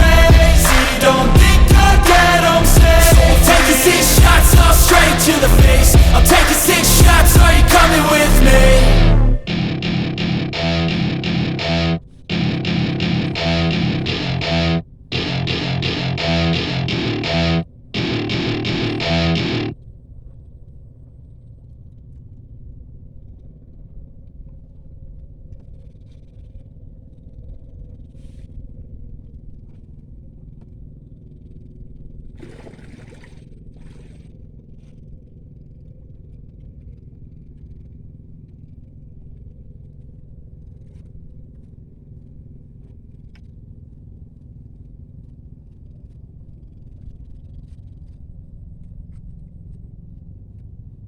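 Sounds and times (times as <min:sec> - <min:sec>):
steady low rumble: 0:00.0 - 0:19.7.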